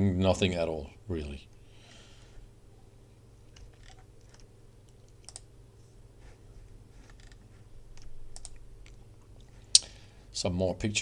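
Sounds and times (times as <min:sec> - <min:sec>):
electrical hum: 0:00.0 - 0:11.0
computer keyboard clicks: 0:03.5 - 0:05.5, 0:08.0 - 0:09.0.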